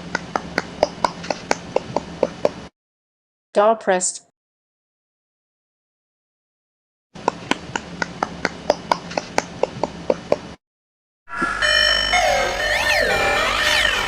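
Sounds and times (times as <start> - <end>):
music with warbling sliding tones: 11.3 - 14.0.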